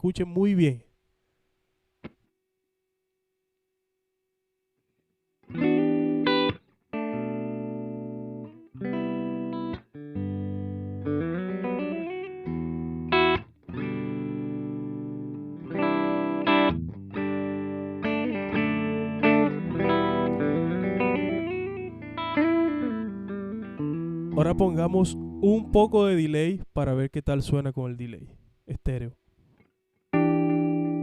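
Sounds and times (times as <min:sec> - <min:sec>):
electric guitar chords ringing: 0:05.5 - 0:26.5, 0:30.1 - 0:31.0
guitar bent notes: 0:05.5 - 0:26.6, 0:30.1 - 0:31.0.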